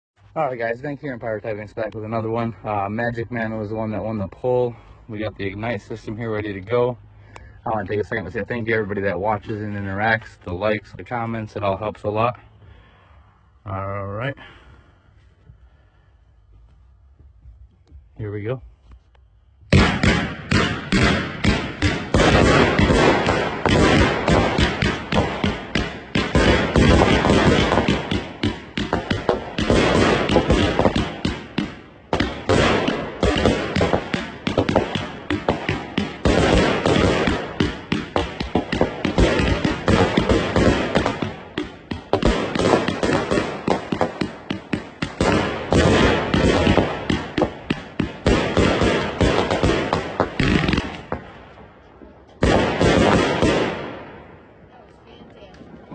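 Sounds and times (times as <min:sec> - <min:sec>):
firework launch thumps and bangs: 0:19.7 - 0:51.3.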